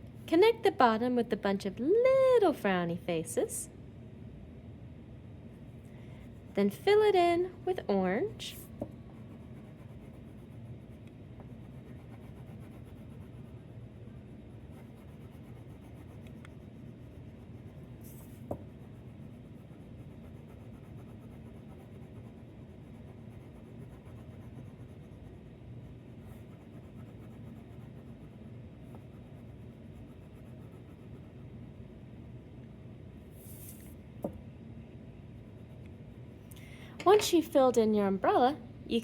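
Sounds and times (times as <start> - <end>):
crayon scribbling on paper: 9.2 - 13.6, 14.6 - 25.5.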